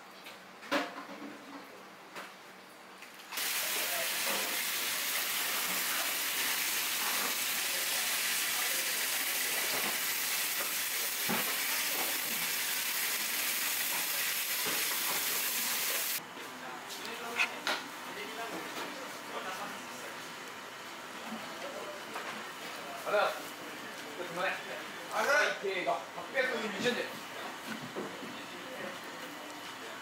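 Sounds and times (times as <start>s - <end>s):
food sizzling in hot oil: 3.3s - 16.2s.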